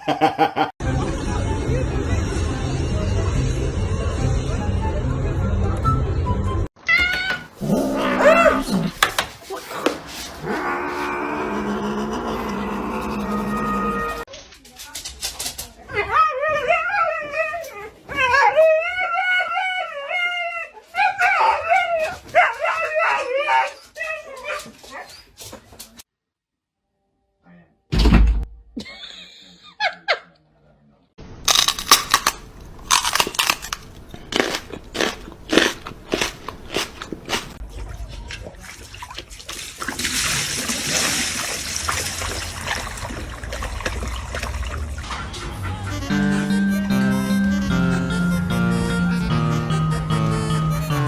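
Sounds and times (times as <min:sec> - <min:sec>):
dog howling: 0:07.6 - 0:09.0, 0:09.8 - 0:14.3
animal crunching chews: 0:31.5 - 0:38.4.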